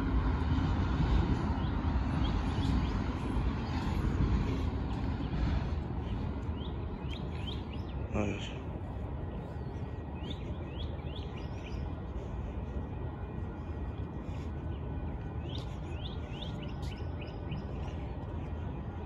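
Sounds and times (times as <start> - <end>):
low background rumble: 0.0 - 19.0
bird chirping: 6.1 - 8.0, 10.2 - 11.9, 15.4 - 18.1.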